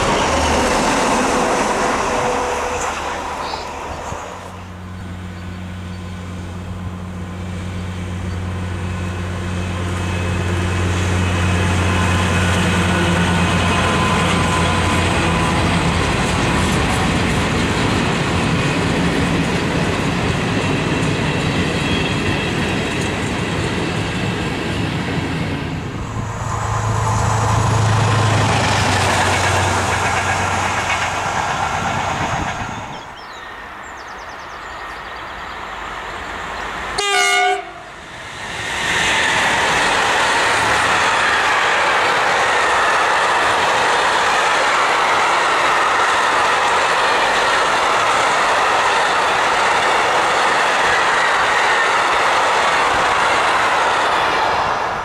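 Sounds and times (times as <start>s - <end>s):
locomotive engine hum: 0.0s - 55.0s
train wheels clattering on rails: 8.3s - 33.4s, 38.0s - 54.5s.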